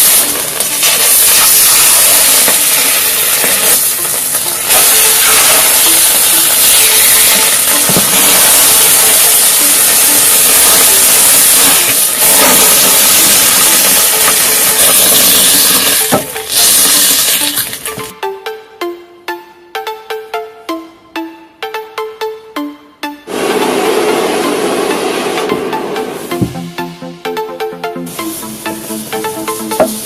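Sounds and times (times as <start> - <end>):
firework hissing: 0.1 - 3.9, 4.7 - 17.8.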